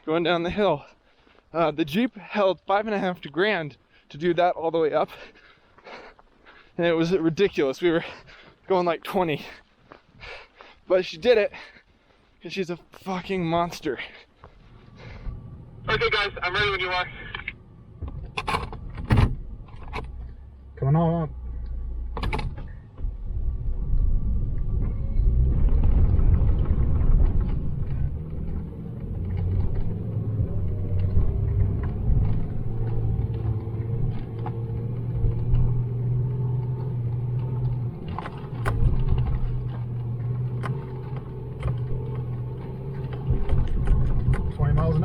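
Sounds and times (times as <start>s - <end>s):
truck engine rumbling: 13.2s - 45.0s.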